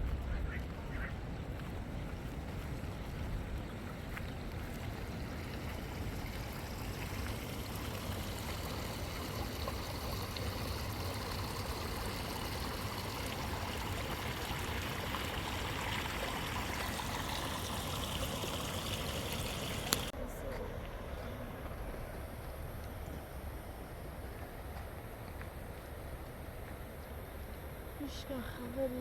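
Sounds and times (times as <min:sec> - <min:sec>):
river water rushing: 0:03.7 - 0:20.1.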